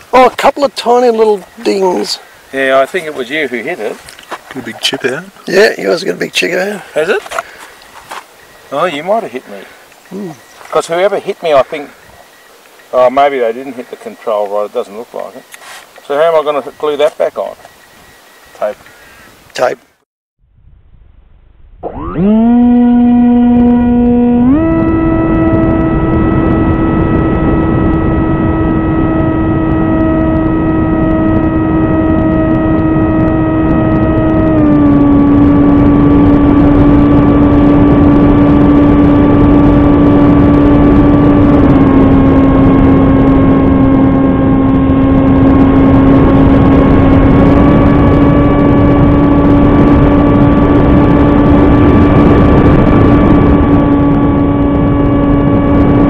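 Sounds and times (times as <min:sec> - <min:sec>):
rc plane motor whining: 0:21.8 - 0:56.0
wind rush: 0:23.1 - 0:56.0.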